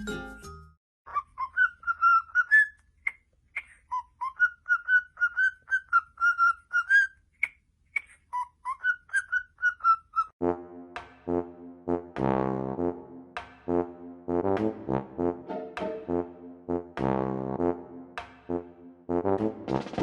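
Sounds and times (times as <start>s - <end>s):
parrot whistling a tune: 1.1s - 2.8s, 3.9s - 7.2s, 8.3s - 10.3s.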